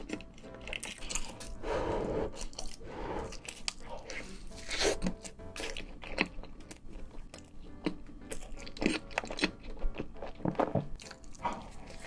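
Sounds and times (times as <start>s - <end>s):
close chewing mouth sounds: 0.0s - 1.6s, 2.2s - 12.0s.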